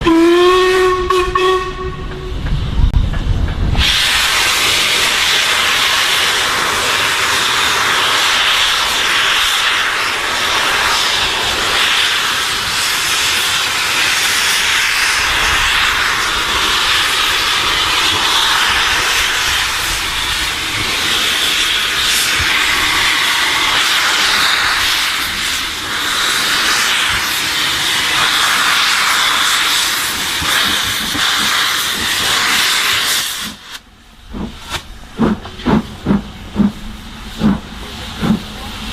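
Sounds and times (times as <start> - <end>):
steam hissing: 3.7 - 38.9.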